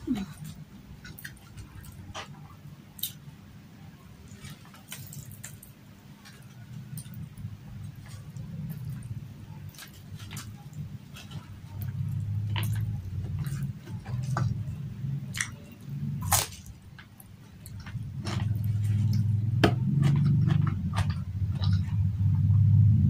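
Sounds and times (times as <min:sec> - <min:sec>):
steady low hum: 0:00.0 - 0:23.0
chewing with wet smacking: 0:00.1 - 0:03.2, 0:04.3 - 0:22.1.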